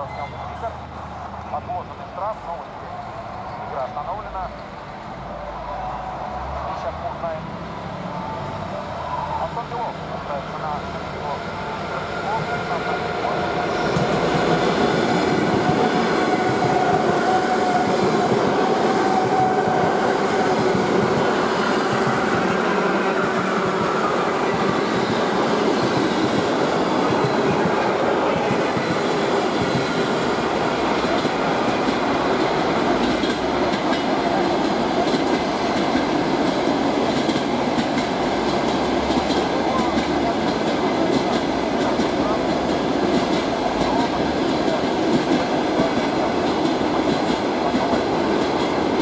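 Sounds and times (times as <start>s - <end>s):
train wheels clattering over rails: 11.8s - 49.0s.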